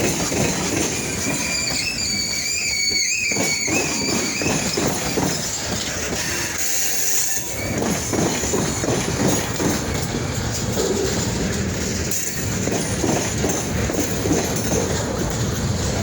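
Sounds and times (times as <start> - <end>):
train wheels rumbling and clattering: 0.0 - 16.0
high wheel squeal: 0.3 - 9.0.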